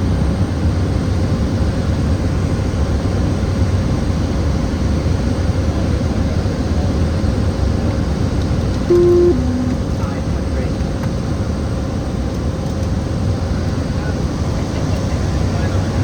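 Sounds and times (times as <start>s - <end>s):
turboprop engine drone: 8.9s - 10.4s.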